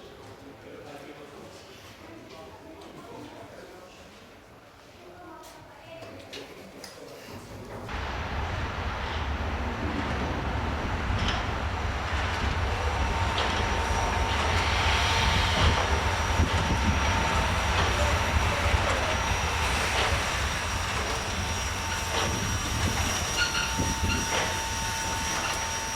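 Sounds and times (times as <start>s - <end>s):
steam train wheels rumbling: 7.9s - 25.9s
thin steady squeal: 10.3s - 25.9s.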